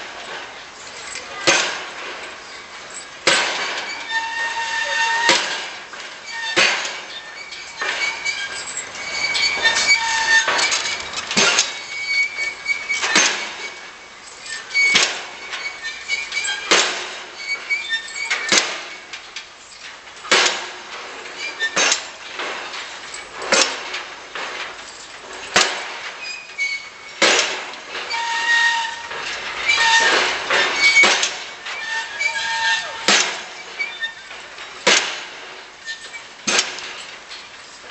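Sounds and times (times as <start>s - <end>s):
metal squeals and clinks: 0.2s - 20.1s, 21.2s - 35.0s, 35.7s - 37.9s
excavator metallic blows: 1.1s - 19.1s, 25.4s - 37.2s.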